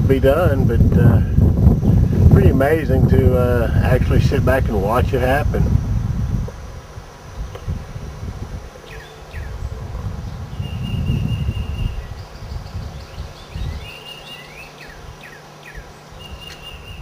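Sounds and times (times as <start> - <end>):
wind rumble on microphone: 0.0 - 14.1
bee swarm buzzing: 0.0 - 17.0
birds chirping and whistling: 8.8 - 17.0.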